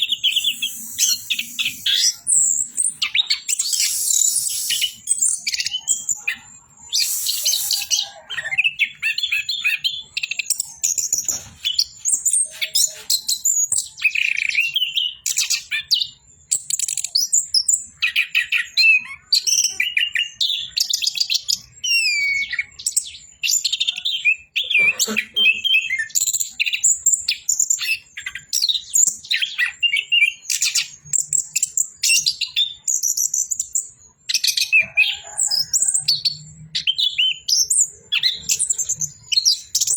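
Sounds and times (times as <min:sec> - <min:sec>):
thrush singing: 0:06.4 - 0:08.3.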